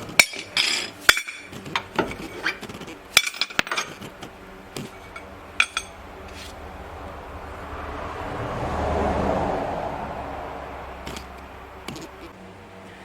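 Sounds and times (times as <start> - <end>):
steel tool parts clinking: 0.0 - 6.6
steady rushing noise: 4.4 - 12.7.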